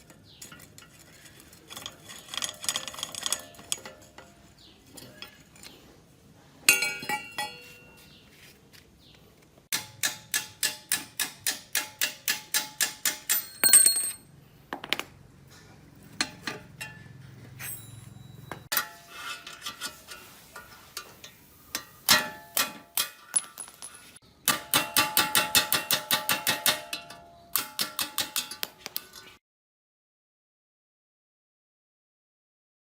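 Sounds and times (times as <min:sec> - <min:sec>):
metal tools clicking on metal: 0:00.0 - 0:05.8, 0:09.7 - 0:14.2, 0:17.6 - 0:29.4.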